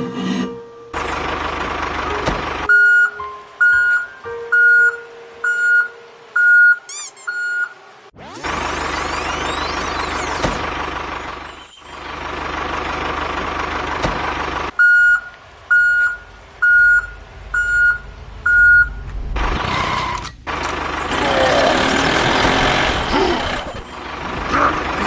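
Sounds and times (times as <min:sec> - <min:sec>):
engine noise: 0:01.0 - 0:02.7, 0:08.2 - 0:14.7, 0:19.4 - 0:25.0
reversing alarm beeping: 0:21.1 - 0:24.2.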